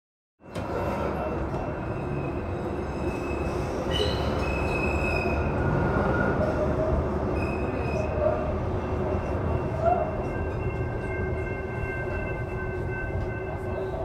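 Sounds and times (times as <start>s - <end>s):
train rumble: 0.4s - 14.0s
high-pitched wheel squeal: 0.6s - 12.4s.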